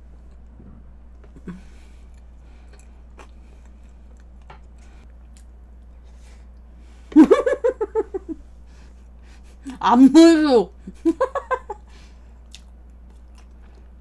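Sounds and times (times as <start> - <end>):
woman chewing cake: 1.3 - 6.7, 12.3 - 14.0.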